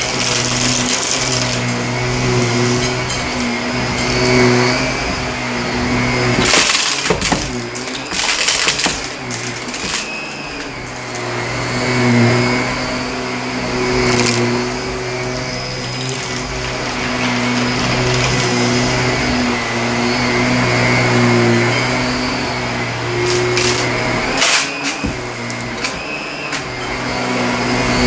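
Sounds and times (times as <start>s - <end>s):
vacuum cleaner on carpet: 0.0s - 28.0s
crunchy crackling of debris: 6.2s - 10.3s.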